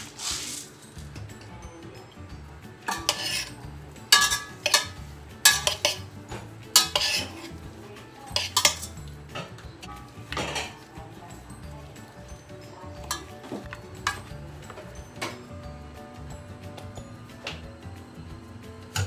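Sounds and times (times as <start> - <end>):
metal spoon clinking against pot: 2.8 - 7.6, 8.2 - 11.0, 12.0 - 15.6.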